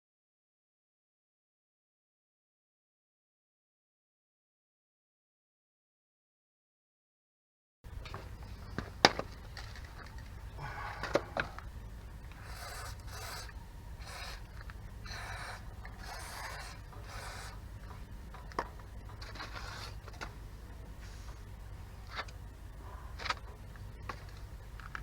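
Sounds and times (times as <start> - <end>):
hand scraping a hard surface: 15.1 - 17.6, 19.2 - 20.2.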